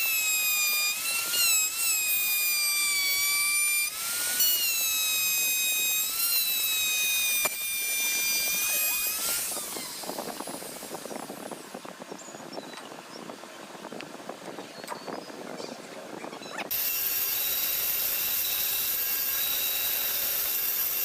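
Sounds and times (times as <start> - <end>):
power tool high-pitched whine: 0.0 - 11.6, 16.6 - 21.0.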